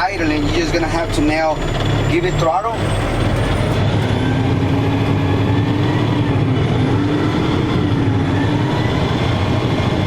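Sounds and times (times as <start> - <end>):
diesel truck engine running: 0.0 - 10.0.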